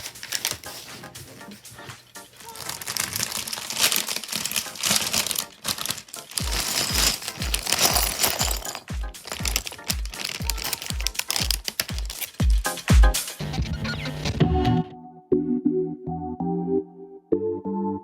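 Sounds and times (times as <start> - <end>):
plastic bags crinkling: 0.0 - 12.8
background music with steady beat: 0.0 - 18.0.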